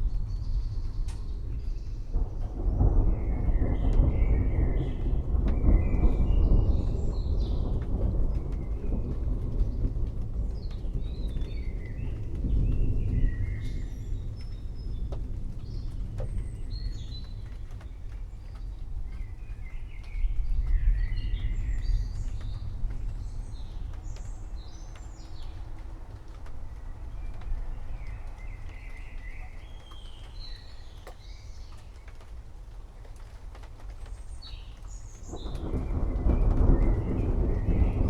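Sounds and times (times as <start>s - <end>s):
rolling thunder: 0.0s - 31.8s, 33.2s - 38.0s
birds chirping: 15.7s - 32.3s.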